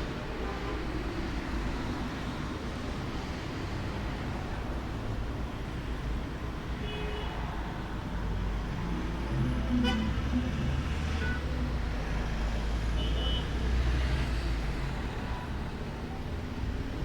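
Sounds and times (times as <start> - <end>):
road traffic rumble: 7.4 - 17.0.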